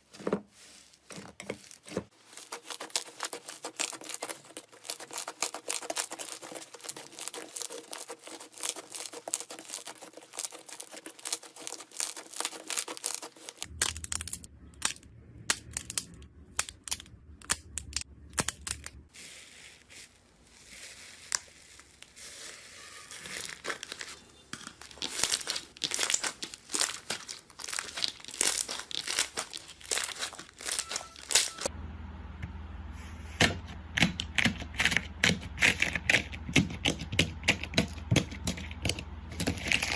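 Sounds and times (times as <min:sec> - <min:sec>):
sticky slime squelches: 0:00.6 - 0:31.7
slime crackling and popping: 0:02.3 - 0:19.0, 0:19.6 - 0:31.7.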